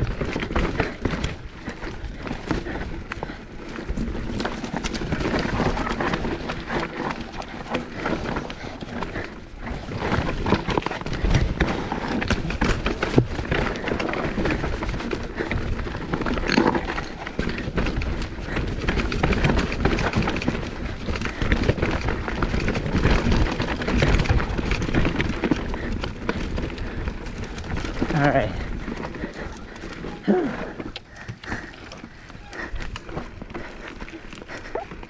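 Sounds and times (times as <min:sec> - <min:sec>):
bike clattering and rattling: 0:00.0 - 0:35.0
tyres crunching over dirt and rocks: 0:00.0 - 0:35.0.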